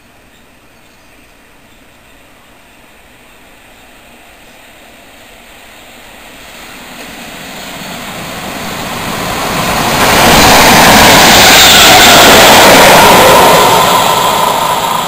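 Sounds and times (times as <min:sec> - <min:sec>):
electric train approaching: 0:03.5 - 0:15.0.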